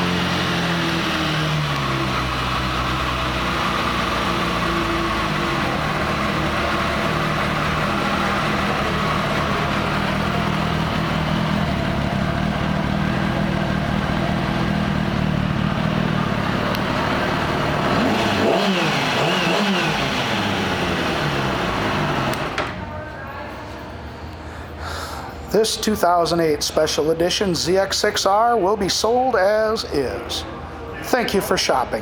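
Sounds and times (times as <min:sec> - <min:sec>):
motorcycle engine idling and revving: 0:00.0 - 0:22.9.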